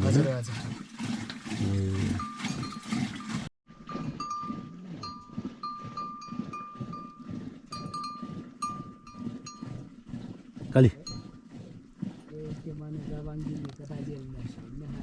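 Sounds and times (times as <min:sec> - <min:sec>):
animal bells clinking: 0:02.1 - 0:09.8, 0:10.8 - 0:11.5.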